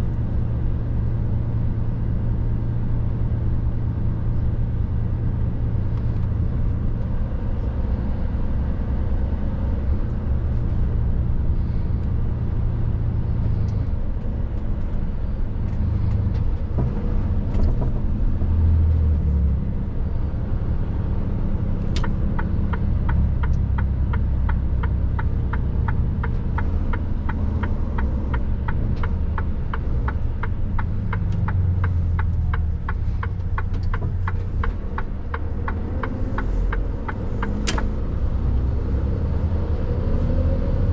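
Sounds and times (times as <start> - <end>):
diesel truck engine rumbling: 0.0 - 40.9
turn indicator ticking: 21.8 - 38.2.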